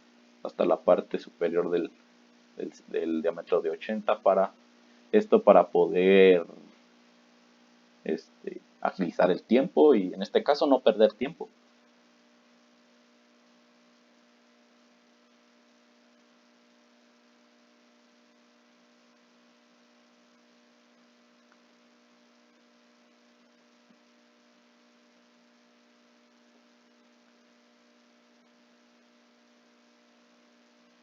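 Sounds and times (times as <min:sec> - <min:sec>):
faint electrical hum: 0:00.0 - 0:31.0.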